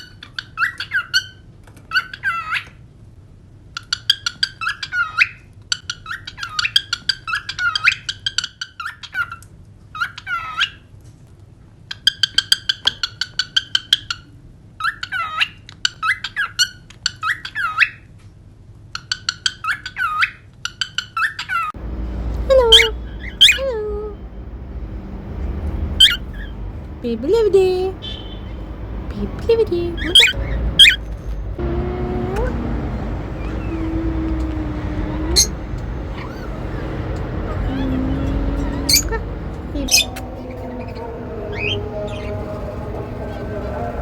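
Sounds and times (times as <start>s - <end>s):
low background rumble: 21.8s - 44.0s
cockatiel chirping and warbling: 22.5s - 23.7s, 26.0s - 26.5s, 30.0s - 31.3s, 35.3s - 36.6s, 37.7s - 39.2s.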